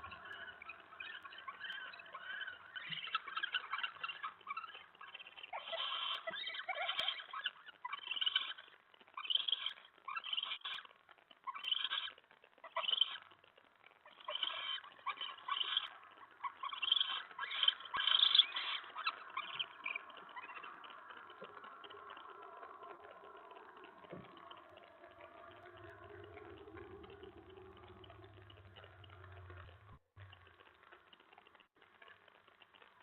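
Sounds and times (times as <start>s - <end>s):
owls hissing screeches: 0.0s - 8.6s, 14.1s - 30.0s.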